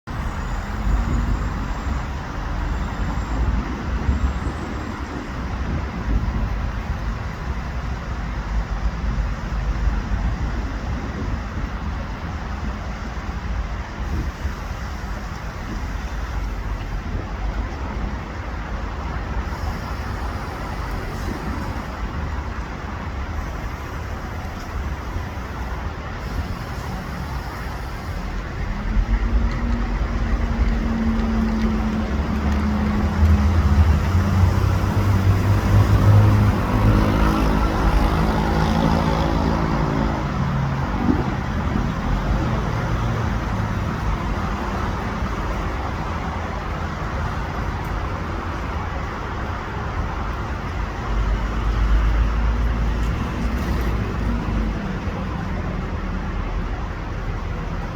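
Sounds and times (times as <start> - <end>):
road traffic rumble: 0.0 - 57.9
vehicle engine passing: 28.8 - 44.3.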